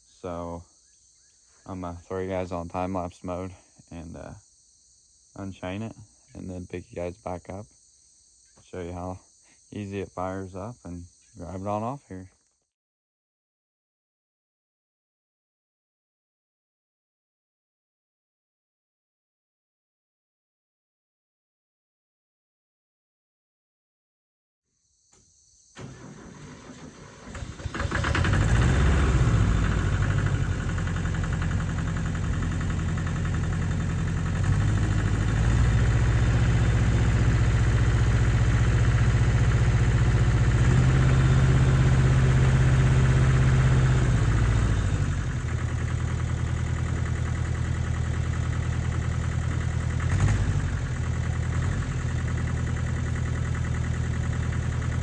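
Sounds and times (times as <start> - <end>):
tractor engine starting and running: 25.8 - 55.0.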